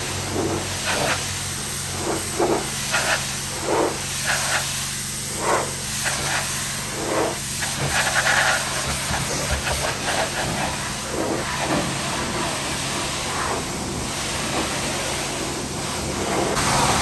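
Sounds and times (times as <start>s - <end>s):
engine running: 0.0s - 17.0s
hiss: 0.0s - 17.0s.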